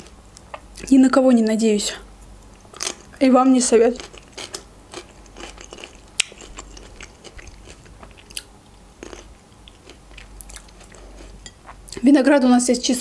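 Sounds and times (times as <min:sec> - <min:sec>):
chewing crisp food: 0:03.8 - 0:12.0.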